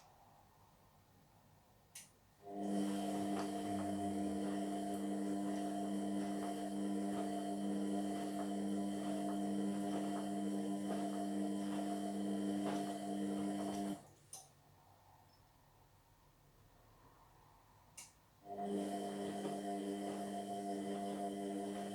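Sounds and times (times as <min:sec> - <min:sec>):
click: 0:01.9 - 0:02.2, 0:13.7 - 0:14.5, 0:18.0 - 0:18.2
washing machine humming: 0:02.4 - 0:14.1, 0:18.5 - 0:21.9.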